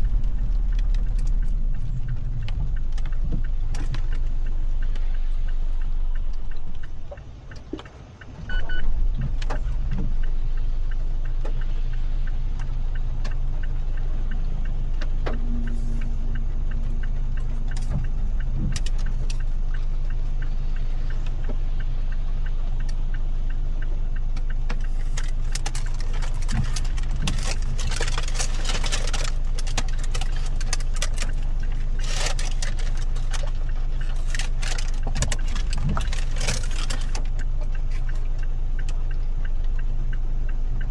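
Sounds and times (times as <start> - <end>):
engine and road hum: 0.0 - 40.9
raindrops ticking on car: 24.1 - 38.2.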